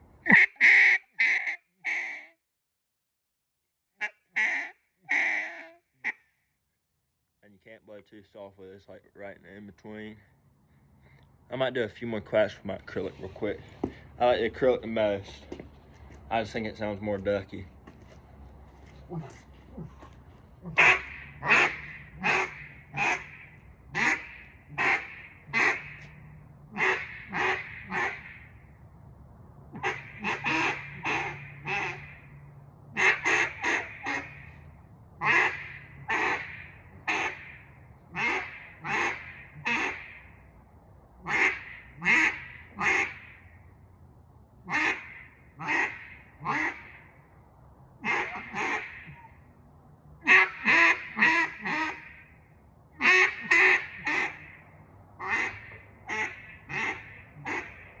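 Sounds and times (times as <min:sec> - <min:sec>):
duck call quacks: 0:00.2 - 0:02.4, 0:04.0 - 0:06.3, 0:20.6 - 0:28.5, 0:29.8 - 0:32.2, 0:33.0 - 0:34.5, 0:35.2 - 0:40.3, 0:41.2 - 0:43.4, 0:44.7 - 0:47.0, 0:48.0 - 0:49.4, 0:50.2 - 0:52.3, 0:53.0 - 0:54.6, 0:55.2 - 0:57.8.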